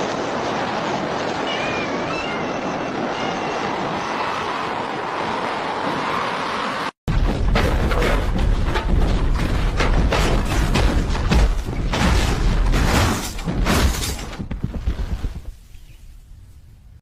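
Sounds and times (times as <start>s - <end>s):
mechanical clattering and knocks: 7.1s - 14.7s.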